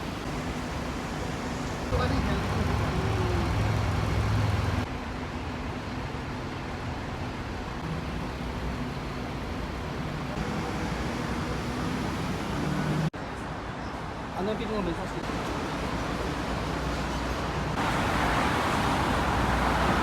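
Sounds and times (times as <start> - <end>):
city street traffic: 0.0 - 20.0
vehicle low rumble: 1.9 - 13.2.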